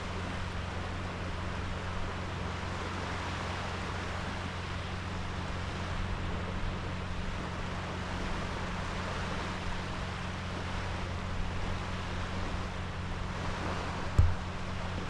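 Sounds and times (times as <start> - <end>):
sea waves washing onto beach: 0.0 - 15.0
wind rumbling on microphone: 0.0 - 15.0
low thump: 14.1 - 14.5.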